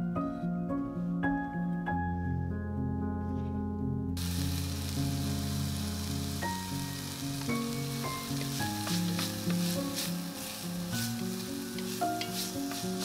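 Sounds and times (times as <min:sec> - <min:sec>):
background music: 0:00.0 - 0:13.0
food frying in oil: 0:04.2 - 0:13.0.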